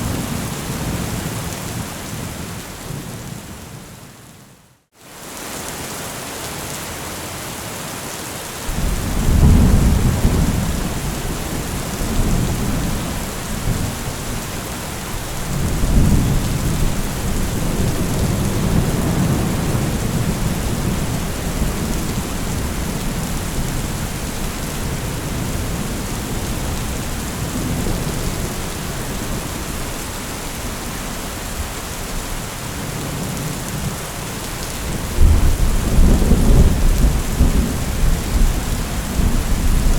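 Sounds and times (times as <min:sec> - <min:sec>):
heavy rain: 0:00.0 - 0:39.9
rolling thunder: 0:08.7 - 0:30.8, 0:34.8 - 0:39.9.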